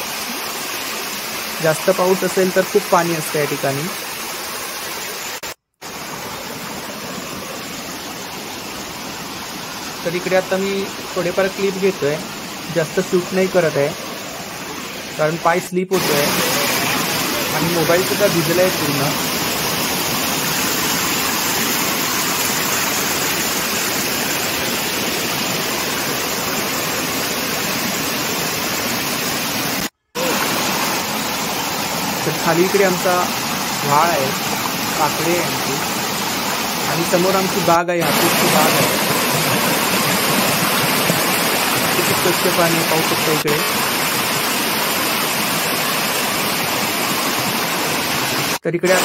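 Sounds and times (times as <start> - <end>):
flowing water rushing: 0.0 - 49.0
heavy rain: 16.0 - 49.0.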